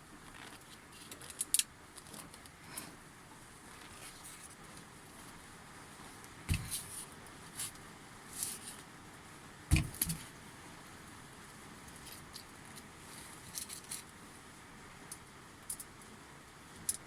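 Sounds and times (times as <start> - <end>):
small parts and tools knocking: 9.7 - 10.3.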